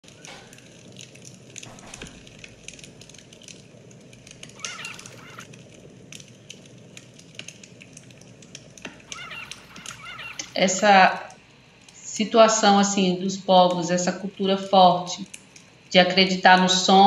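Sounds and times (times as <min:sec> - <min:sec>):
wood fire crackling: 0:00.0 - 0:12.0, 0:15.2 - 0:16.0
bird-like chirp: 0:04.6 - 0:05.5, 0:09.0 - 0:11.2.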